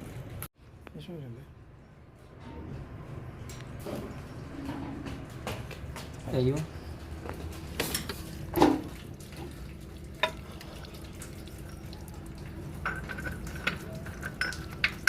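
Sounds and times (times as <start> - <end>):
metal engine parts clinking: 12.7 - 15.0.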